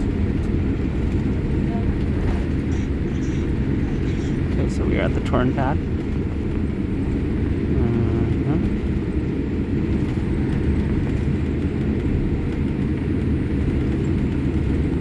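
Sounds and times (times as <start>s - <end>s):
airplane engines rumbling in cabin: 0.0s - 15.0s
faint voice: 7.7s - 8.7s.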